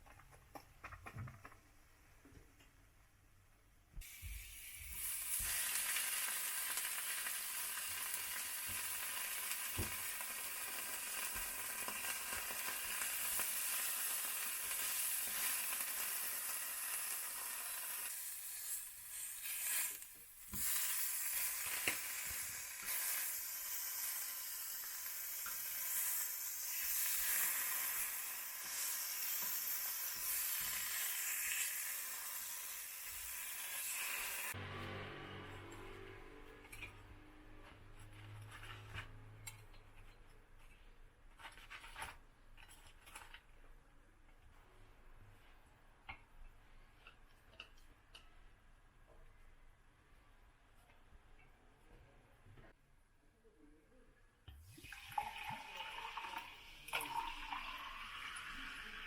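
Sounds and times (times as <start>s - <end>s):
food sizzling in a pan: 4.0s - 34.6s, 54.8s - 59.0s.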